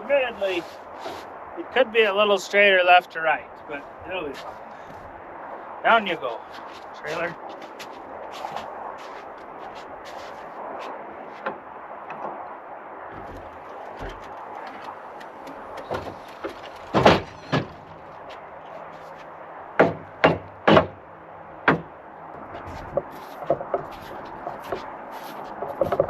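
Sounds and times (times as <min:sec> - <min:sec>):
steady background noise: 0:00.0 - 0:26.0
loud knocks and bangs: 0:15.8 - 0:18.0, 0:19.8 - 0:21.0.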